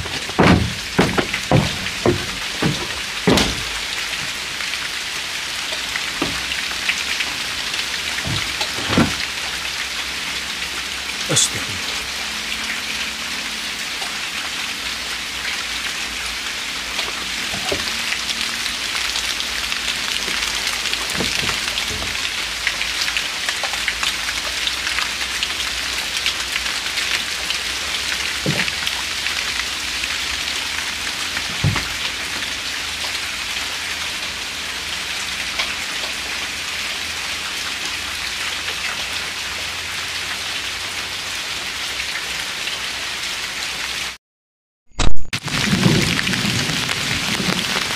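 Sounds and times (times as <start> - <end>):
heavier thuds: 0.0 - 4.4, 6.2 - 6.5, 8.2 - 9.2
steady rain falling: 0.0 - 44.2, 45.4 - 47.9.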